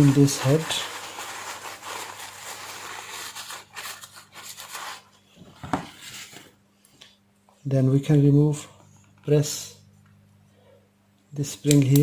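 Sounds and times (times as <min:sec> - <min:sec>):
plastic scratchy rubbing: 0:00.0 - 0:05.2.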